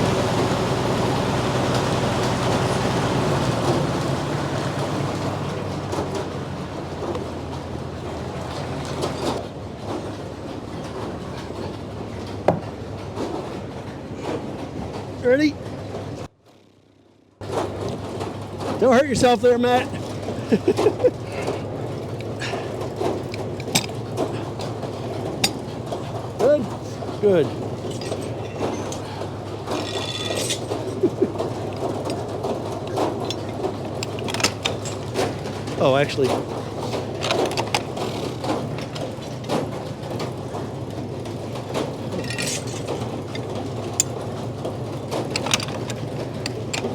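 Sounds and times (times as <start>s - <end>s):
sawmill engine running: 0.0s - 9.4s, 17.4s - 46.9s
knocks of log handling: 12.5s - 12.7s.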